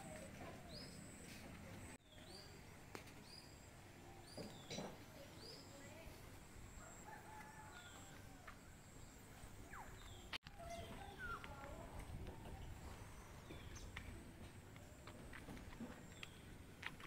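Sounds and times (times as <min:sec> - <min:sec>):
bird chirping: 0:08.8 - 0:14.2
lower bird calls: 0:09.6 - 0:14.1.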